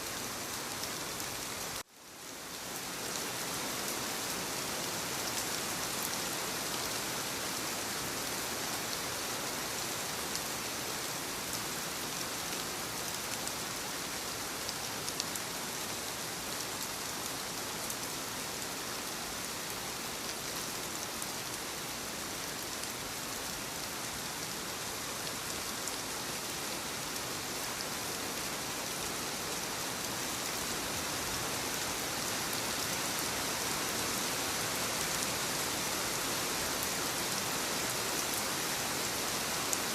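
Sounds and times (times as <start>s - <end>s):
rain pattering on surfaces: 12.4s - 39.9s.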